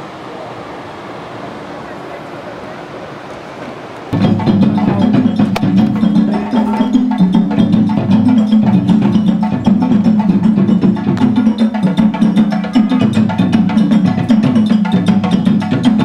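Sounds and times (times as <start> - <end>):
hand drums playing: 4.2 - 16.0.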